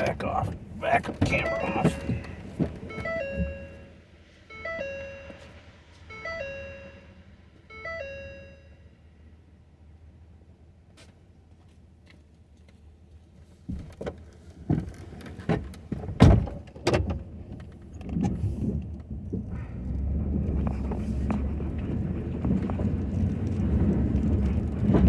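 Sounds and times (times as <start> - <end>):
truck engine low rumble: 0.0 - 25.0
truck door clunks and knocks: 0.5 - 3.8, 15.5 - 17.3.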